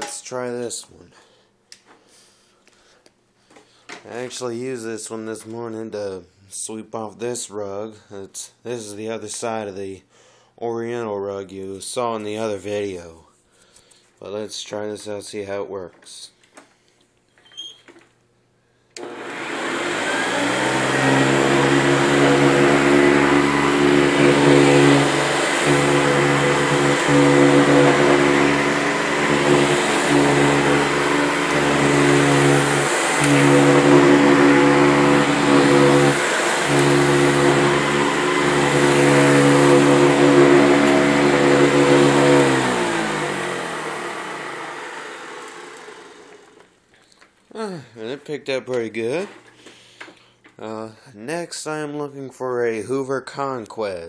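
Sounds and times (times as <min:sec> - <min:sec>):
vacuum cleaner motor running: 0:19.0 - 0:46.8.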